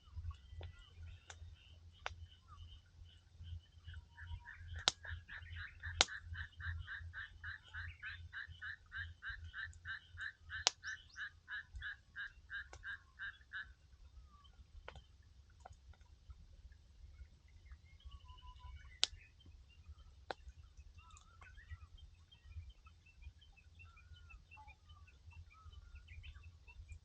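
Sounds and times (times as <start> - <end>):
wood fire popping: 4.8 - 5.2.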